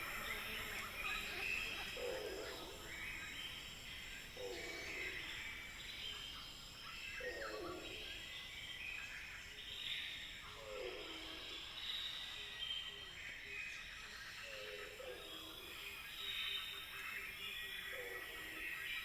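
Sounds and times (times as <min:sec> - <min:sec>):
bird calls: 0:00.0 - 0:06.3
insects buzzing: 0:00.0 - 0:09.5.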